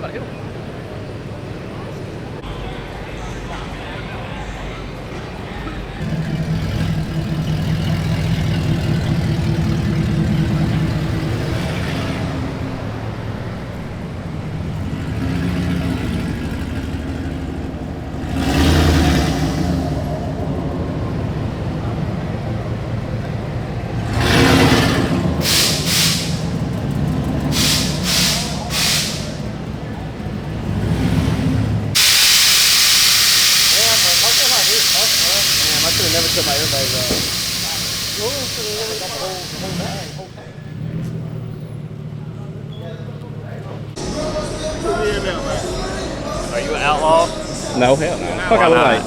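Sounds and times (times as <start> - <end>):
truck engine running: 0.0 - 49.0
air release hisses: 25.4 - 26.6, 27.5 - 29.5, 32.0 - 40.3.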